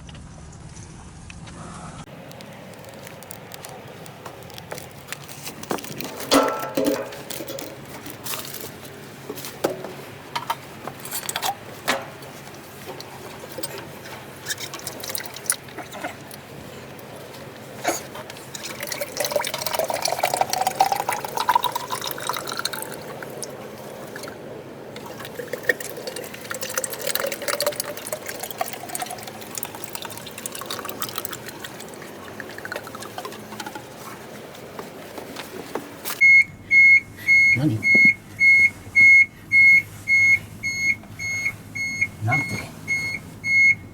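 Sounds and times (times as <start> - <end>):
oil pouring into container: 2.1 - 8.7, 14.3 - 17.1, 18.2 - 24.4, 25.0 - 34.3
clinks: 3.2 - 8.7
drips: 12.9 - 34.9.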